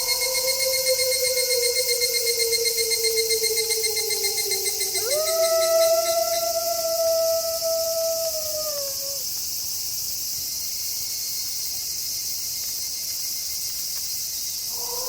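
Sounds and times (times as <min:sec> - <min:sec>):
wolf howling: 0:00.0 - 0:09.2, 0:14.7 - 0:15.0
high insect chorus: 0:00.0 - 0:15.0.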